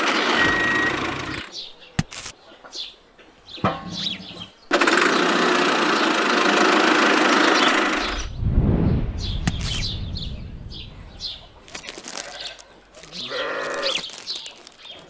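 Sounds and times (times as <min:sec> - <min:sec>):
low thud: 0:08.3 - 0:11.7
livestock bleat: 0:12.2 - 0:14.0.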